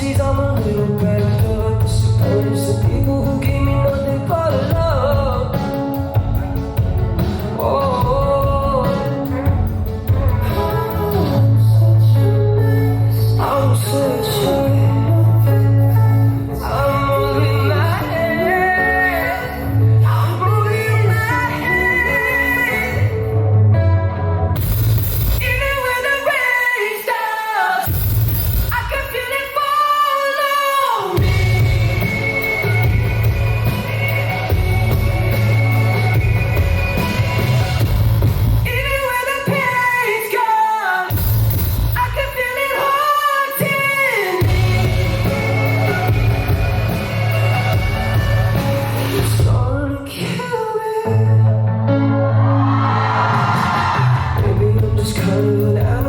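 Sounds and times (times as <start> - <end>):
person singing: 0.0 - 24.0, 28.7 - 56.0
heavy bass: 0.0 - 25.9, 31.2 - 39.2, 41.1 - 42.5, 44.4 - 50.0, 51.2 - 56.0
live pop-rock band: 0.0 - 56.0
wordless singing: 28.7 - 41.2, 42.0 - 51.4.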